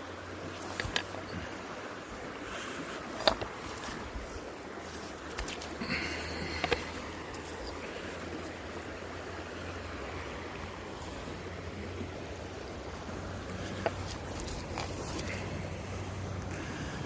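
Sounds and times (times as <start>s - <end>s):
low steady hum: 0.0s - 17.0s
stream water running: 0.0s - 17.0s.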